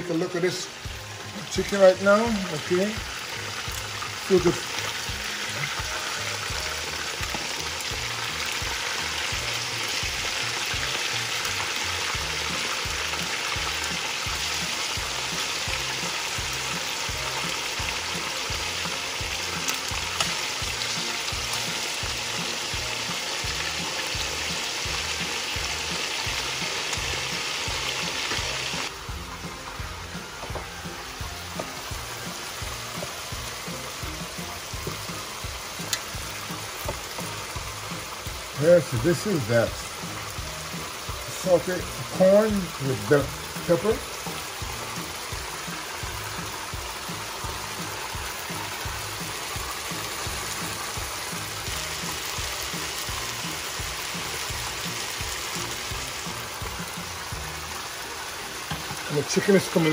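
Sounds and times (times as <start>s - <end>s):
chicken sizzling in oil: 0.0s - 59.9s
vegetables sizzling in skillet: 0.0s - 59.9s.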